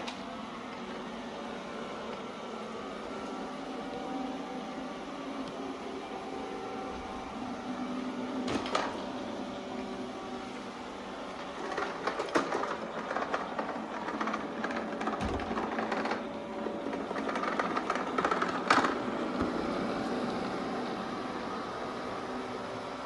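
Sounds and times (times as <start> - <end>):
robot vacuum motor and brush hum: 0.1 - 23.0
rattling and clicks: 11.4 - 19.1.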